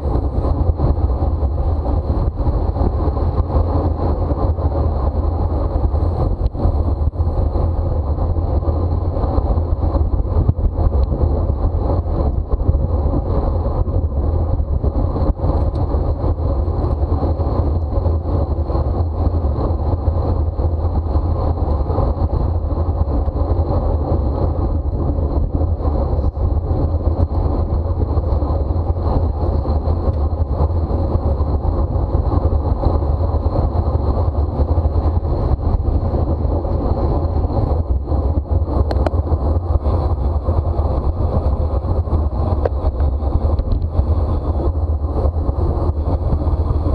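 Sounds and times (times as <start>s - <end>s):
wind rushing over microphone: 0.0s - 46.9s.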